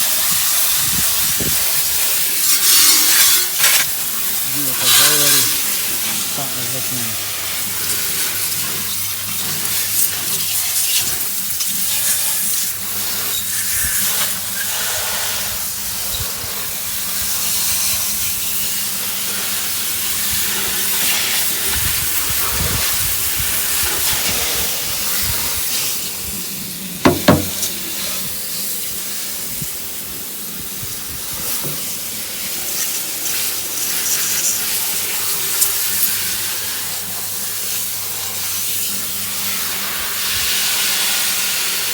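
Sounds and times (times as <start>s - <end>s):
hose water spraying: 0.0s - 26.1s, 27.1s - 27.9s, 30.9s - 41.9s
sharp knock: 27.1s - 27.7s.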